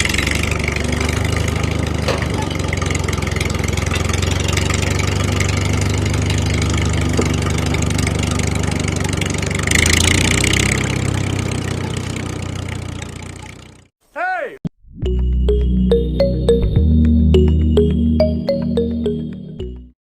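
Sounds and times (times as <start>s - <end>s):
small engine idling: 0.0s - 13.9s.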